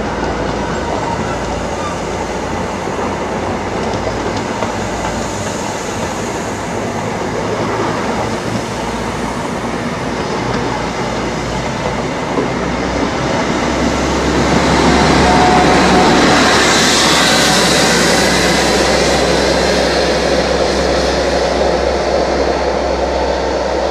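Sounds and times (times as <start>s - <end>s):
wheels clickety-clack: 0.0s - 8.8s
train wheels rushing on rails: 0.0s - 23.9s.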